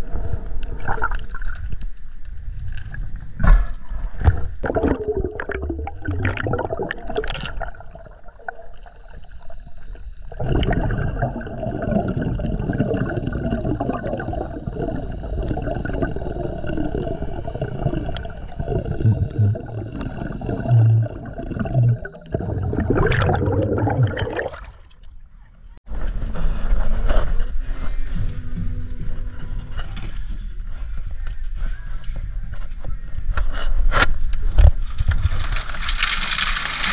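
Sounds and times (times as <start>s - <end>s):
water gurgling and splashing: 0.6s - 1.8s, 3.3s - 25.1s.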